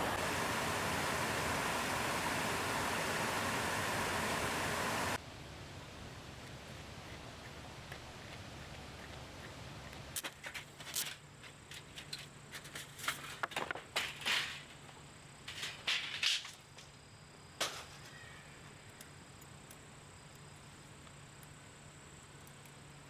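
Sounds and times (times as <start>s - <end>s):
wood fire crackling: 0.0s - 5.2s.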